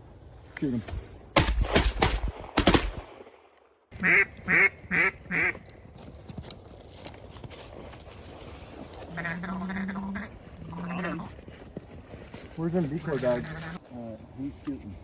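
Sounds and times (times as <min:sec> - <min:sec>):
shotgun blasts: 0:01.4 - 0:03.5
duck quacks: 0:04.0 - 0:05.6, 0:09.2 - 0:10.3.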